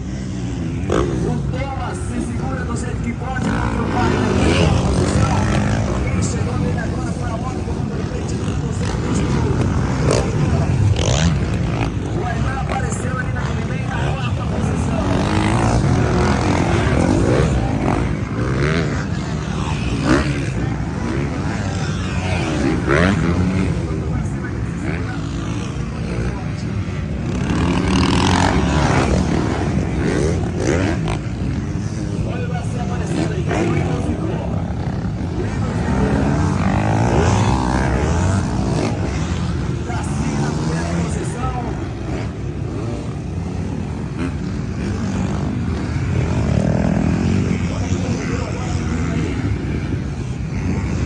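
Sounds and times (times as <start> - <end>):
motocross bikes revving: 0.0 - 51.0.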